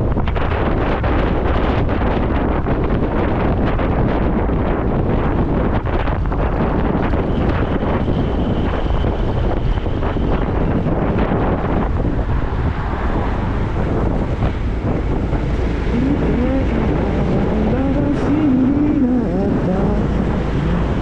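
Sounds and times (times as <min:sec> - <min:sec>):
wind noise on microphone: 0:00.0 - 0:21.0.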